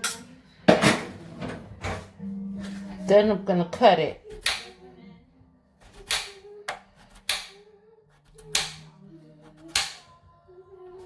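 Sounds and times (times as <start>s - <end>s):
knife chopping on cutting board: 4.3s - 4.8s, 5.8s - 7.6s, 8.2s - 8.9s, 9.5s - 10.1s.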